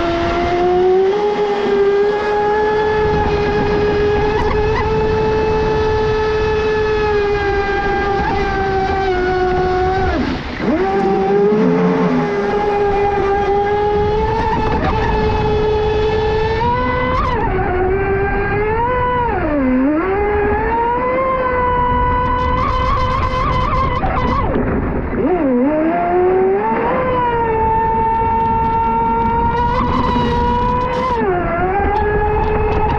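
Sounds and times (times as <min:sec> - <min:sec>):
electric motor whine: 0:00.0 - 0:24.4, 0:25.3 - 0:32.9
water rushing: 0:10.1 - 0:13.4.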